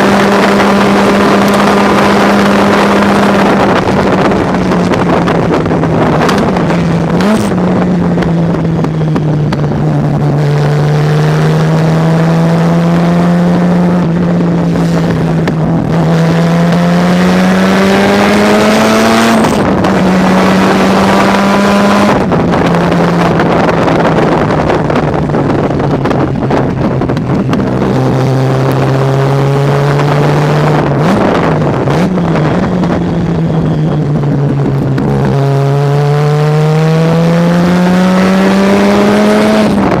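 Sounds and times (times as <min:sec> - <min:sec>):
engine throttle blips: 0:00.0 - 0:40.0
race car engine at speed: 0:00.0 - 0:40.0.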